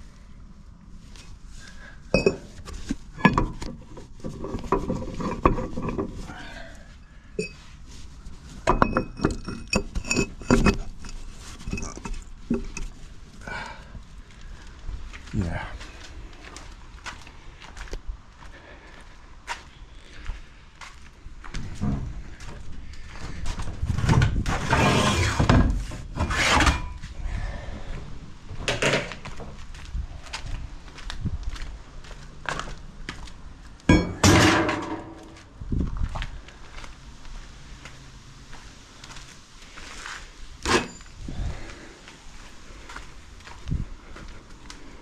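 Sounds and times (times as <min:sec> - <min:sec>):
rough scraping and rubbing: 0:02.3 - 0:06.4, 0:23.8 - 0:27.0
metal parts clanking: 0:24.0 - 0:27.0, 0:33.9 - 0:35.4.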